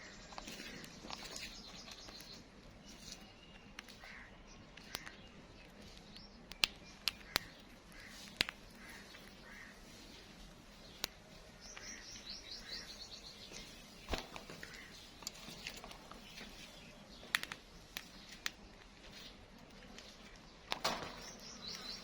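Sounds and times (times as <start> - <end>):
parakeet chirping: 0.0 - 15.6
sharp clicks and knocks: 4.7 - 9.4, 17.2 - 18.9, 19.9 - 22.0.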